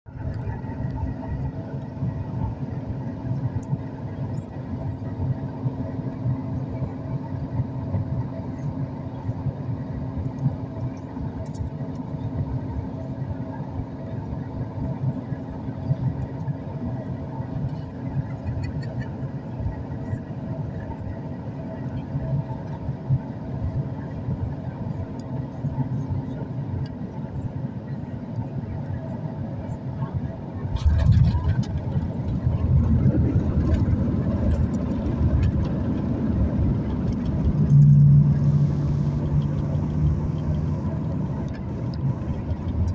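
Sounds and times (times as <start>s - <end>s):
airliner engine and airflow noise: 0.0s - 42.9s
constant cabin hums: 0.1s - 42.9s.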